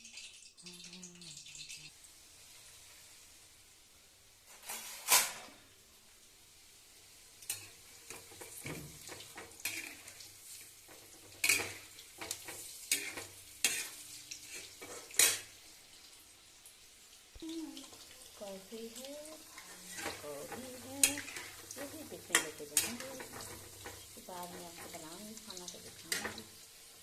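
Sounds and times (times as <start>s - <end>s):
food sizzling in oil: 0.0s - 27.0s
metal spoon scraping a pan: 7.5s - 15.5s, 19.1s - 26.6s.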